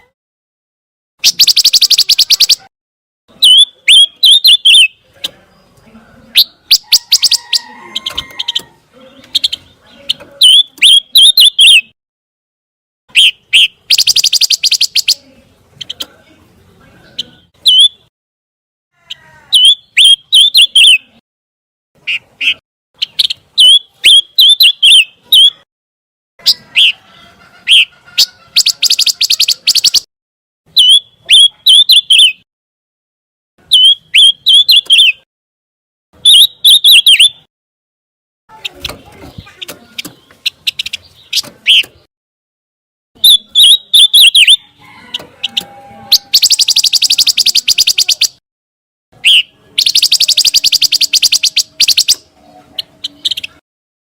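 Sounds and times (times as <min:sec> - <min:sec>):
songbird chirping and trilling: 0:01.2 - 0:02.7, 0:03.3 - 0:12.0, 0:13.1 - 0:18.1, 0:19.0 - 0:21.2, 0:22.0 - 0:25.7, 0:26.4 - 0:30.1, 0:30.7 - 0:32.5, 0:33.6 - 0:35.3, 0:36.2 - 0:37.5, 0:38.5 - 0:42.1, 0:43.2 - 0:48.4, 0:49.2 - 0:53.6.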